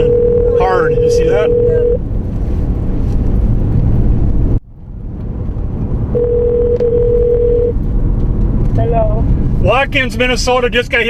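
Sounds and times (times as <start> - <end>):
phone ringback tone: 0.0 - 2.0, 6.2 - 7.7
vehicle cabin rumble: 0.0 - 11.0.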